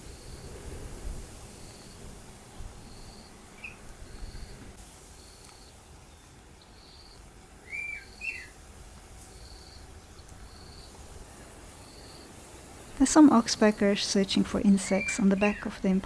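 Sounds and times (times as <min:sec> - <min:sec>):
faint high bird chirp: 0:05.6 - 0:08.6
bending bird calls: 0:12.9 - 0:16.0.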